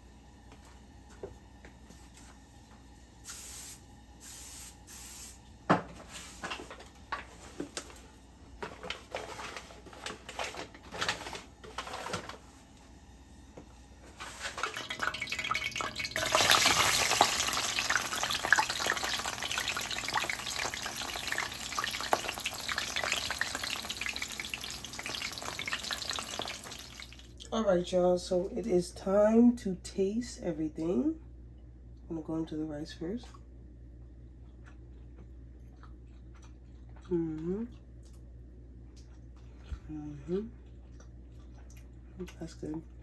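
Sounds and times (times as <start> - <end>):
food frying in a pan: 14.2 - 27.5.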